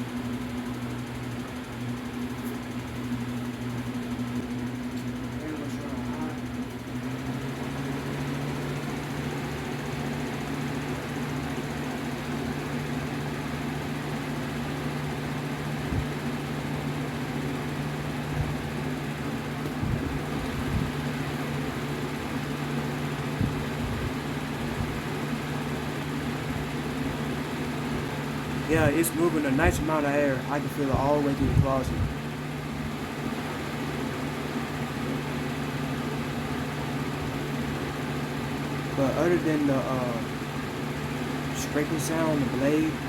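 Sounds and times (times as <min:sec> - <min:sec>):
box fan humming: 0:00.0 - 0:43.0
fan blade scraping: 0:27.9 - 0:32.1.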